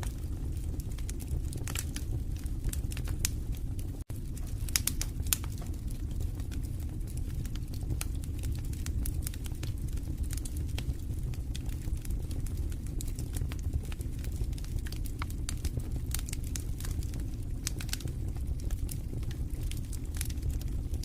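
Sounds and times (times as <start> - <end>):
fireplace fire crackling: 0.0 - 21.0.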